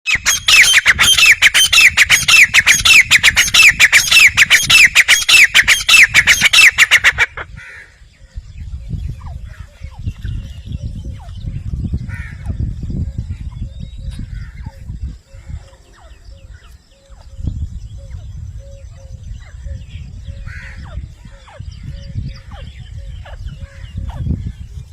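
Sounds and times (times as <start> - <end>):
bird calling harsh notes: 0.0 - 7.9.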